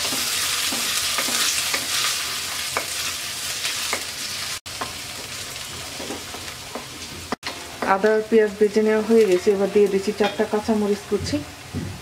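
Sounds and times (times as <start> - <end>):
onion sizzling in hot oil: 0.0 - 12.0.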